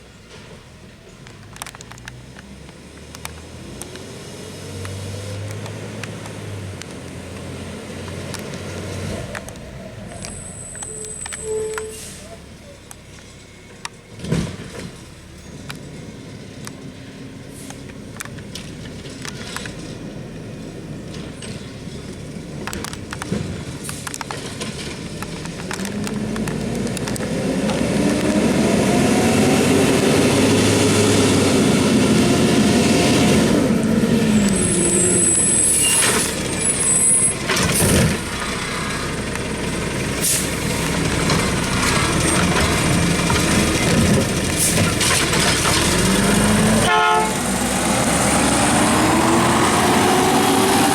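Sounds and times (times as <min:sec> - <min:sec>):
garbage truck engine: 0:00.0 - 0:50.9
brief high squeal: 0:10.3 - 0:12.5, 0:34.6 - 0:37.4.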